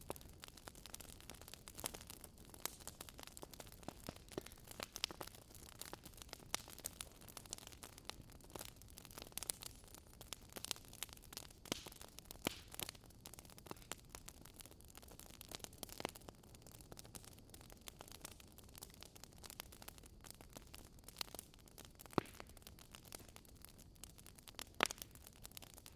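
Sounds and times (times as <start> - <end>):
campfire crackling: 0.0 - 25.9.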